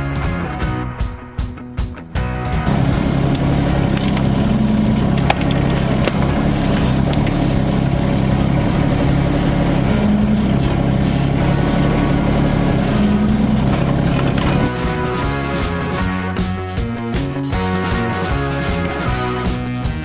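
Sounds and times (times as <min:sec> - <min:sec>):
excavator diesel engine running: 0:02.7 - 0:16.2.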